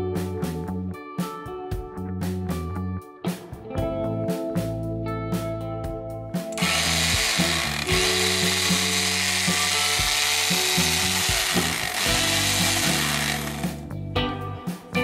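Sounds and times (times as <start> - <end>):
background music: 0.0 - 15.0
electric drill running: 6.6 - 13.8.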